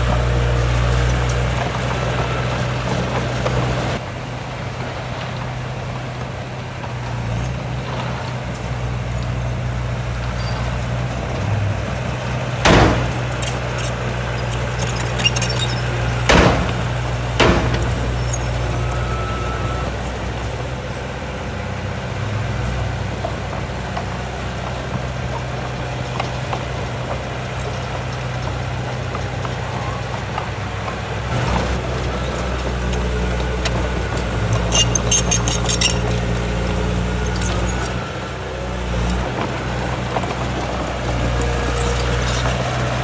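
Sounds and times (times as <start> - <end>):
heavy diesel engine humming: 0.0 - 43.0
sharp clicks or rattles: 12.7 - 19.0, 34.1 - 38.0.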